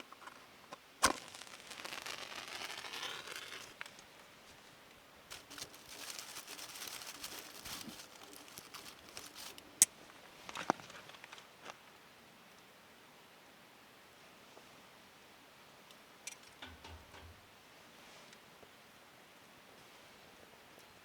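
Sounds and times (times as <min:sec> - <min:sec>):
kindling crackling and rustling: 0:00.0 - 0:04.7, 0:05.3 - 0:11.8.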